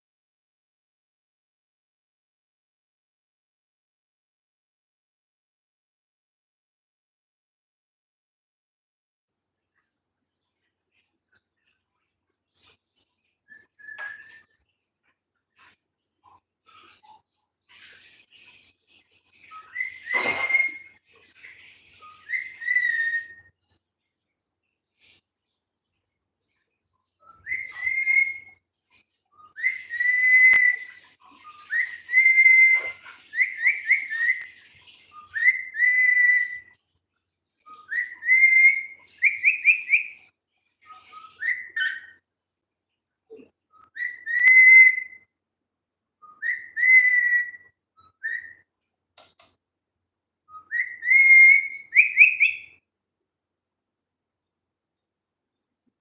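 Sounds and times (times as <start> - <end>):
parrot whistling: 19.6 - 20.9, 22.2 - 23.4, 27.3 - 28.5, 29.5 - 31.0, 31.6 - 34.5, 35.2 - 36.7, 37.7 - 40.2, 41.0 - 42.2, 43.9 - 45.2, 46.2 - 48.6, 50.5 - 52.8.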